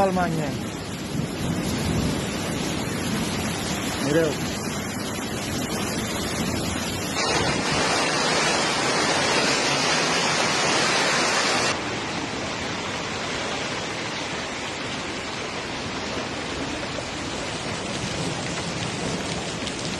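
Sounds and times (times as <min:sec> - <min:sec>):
hail pelting down: 0:00.8 - 0:11.8, 0:15.0 - 0:19.9.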